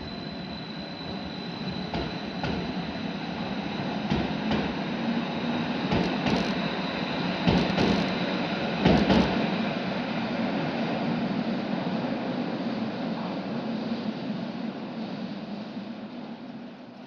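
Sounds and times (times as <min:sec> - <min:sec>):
train rumble: 0:00.0 - 0:14.4
train wheels clacking over rail joints: 0:04.1 - 0:04.8, 0:05.8 - 0:06.6, 0:07.4 - 0:08.1, 0:08.8 - 0:09.4.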